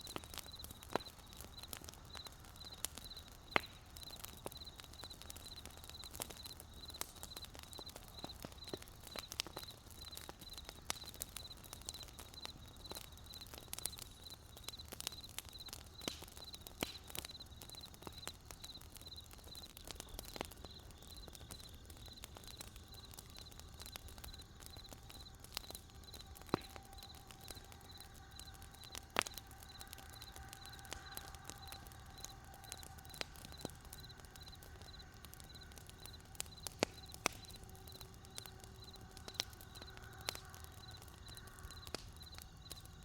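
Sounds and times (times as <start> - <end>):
cricket chirping trill: 0.0 - 43.0
wood campfire crackling: 0.0 - 43.0.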